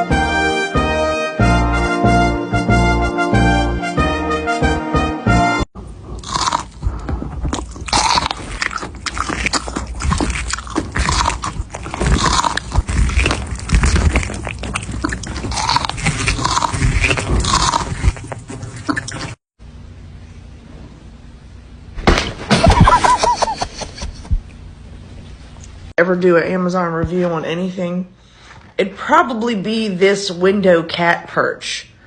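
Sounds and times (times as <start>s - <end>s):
cat chewing crunchy food: 6.0s - 19.4s.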